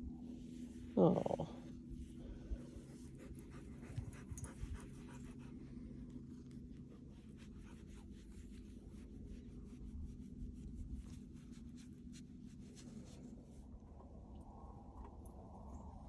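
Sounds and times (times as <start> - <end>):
low hum: 0.0 - 16.0
dog panting: 3.0 - 5.6.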